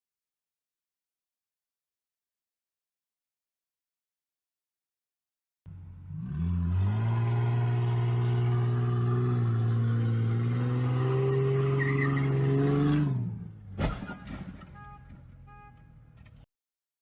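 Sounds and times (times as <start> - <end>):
sharp bang: 13.8 - 15.1.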